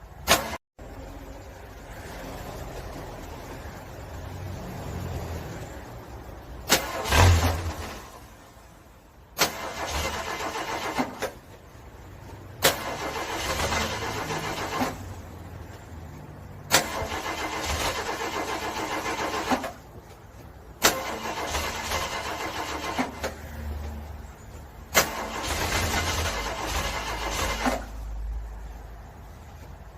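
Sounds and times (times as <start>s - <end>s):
car starter cranking: 6.6s - 8.3s, 9.4s - 11.6s, 12.6s - 15.2s, 16.6s - 19.9s, 20.8s - 23.4s, 24.9s - 28.0s.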